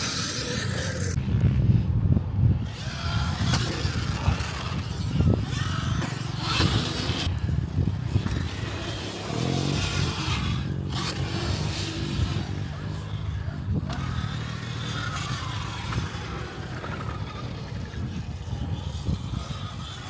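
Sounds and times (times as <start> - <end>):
motorcycle engines running: 0.0 - 20.0.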